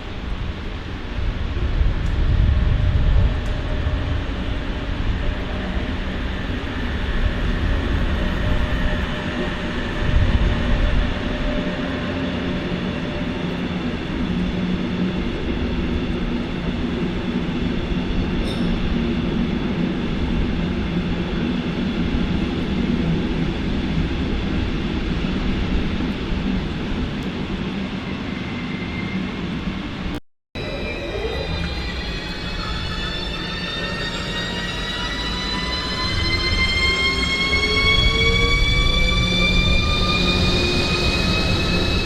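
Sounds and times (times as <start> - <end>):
train rumbling: 0.0 - 42.0.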